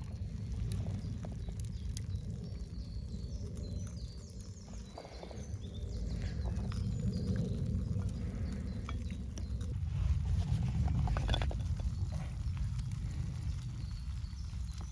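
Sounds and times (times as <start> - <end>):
small birds chirping: 0.0 - 14.9
steady low rumble: 0.0 - 14.9.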